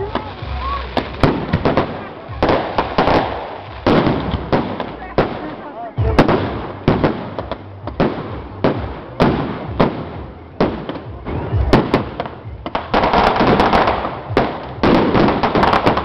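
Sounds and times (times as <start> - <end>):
firecrackers banging and crackling: 0.0 - 16.0.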